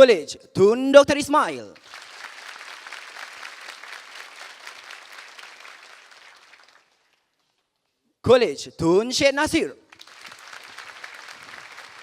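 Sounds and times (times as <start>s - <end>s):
audience applauding: 1.8s - 7.4s, 9.9s - 12.0s.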